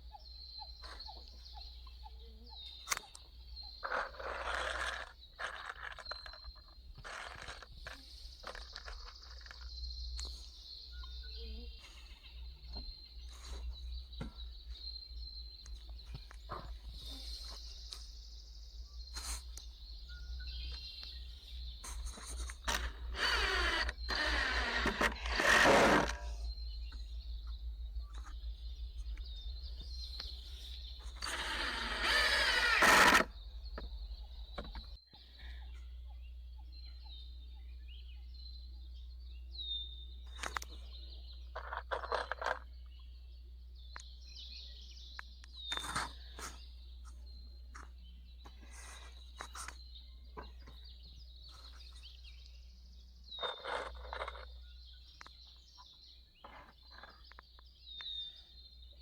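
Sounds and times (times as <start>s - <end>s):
small birds chirping: 0.0s - 59.0s
steady low hum: 9.7s - 41.6s.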